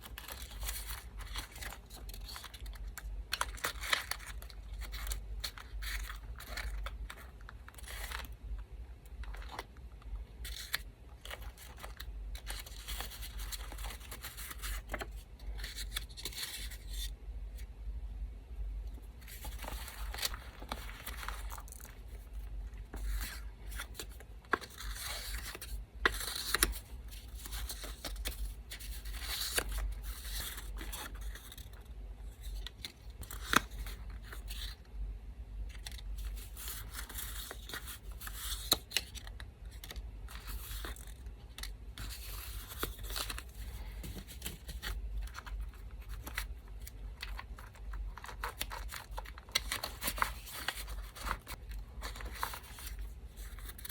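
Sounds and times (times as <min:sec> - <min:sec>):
electric fan hum: 0:00.0 - 0:53.9
paper tearing and rustling: 0:42.0 - 0:53.9.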